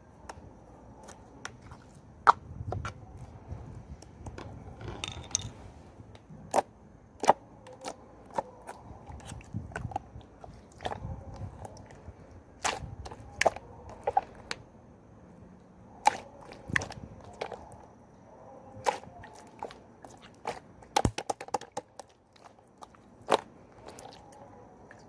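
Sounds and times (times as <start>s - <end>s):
low uneven rumble: 0.0s - 6.2s.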